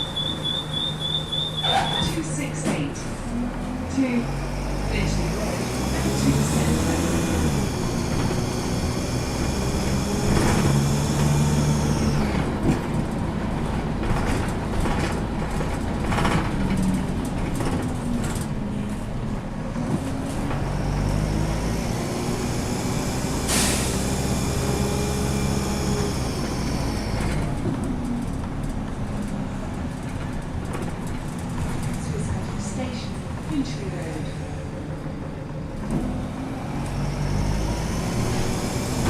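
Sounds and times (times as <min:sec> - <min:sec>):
bus diesel engine: 0:00.0 - 0:39.0
air brake hiss: 0:23.5 - 0:24.0.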